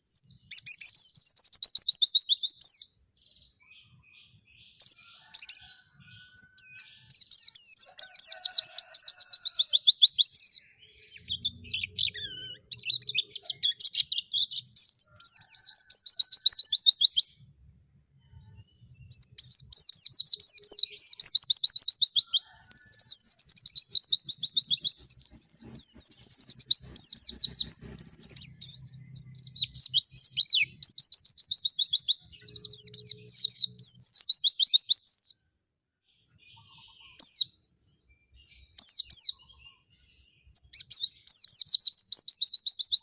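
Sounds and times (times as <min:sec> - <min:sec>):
bird twittering song: 0:00.0 - 0:43.0.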